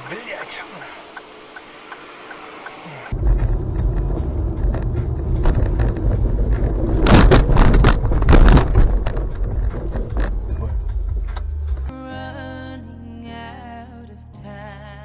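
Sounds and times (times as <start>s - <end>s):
car road and engine rumble: 0.0s - 11.9s
sharp knocks and crunches: 3.2s - 11.9s.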